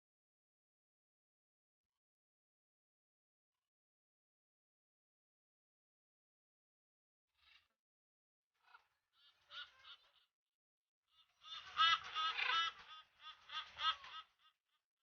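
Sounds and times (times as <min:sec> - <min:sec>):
parrots squawking: 0:11.4 - 0:14.2.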